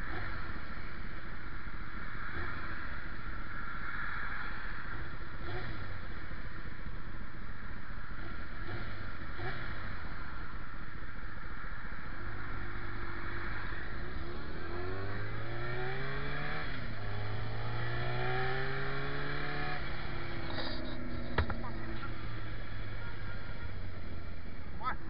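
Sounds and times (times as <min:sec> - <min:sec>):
wind and road noise: 0:00.0 - 0:25.0
motorcycle engine accelerating: 0:12.2 - 0:25.0.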